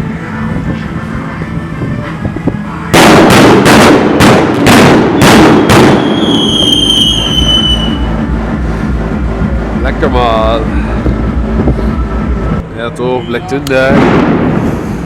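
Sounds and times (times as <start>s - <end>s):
fireworks bangs: 2.9s - 8.1s, 13.9s - 15.0s
high falling whistle: 6.0s - 8.2s.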